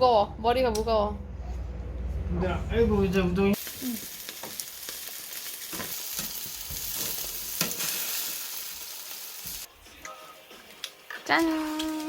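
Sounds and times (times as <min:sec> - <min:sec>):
food sizzling: 0:03.5 - 0:12.0.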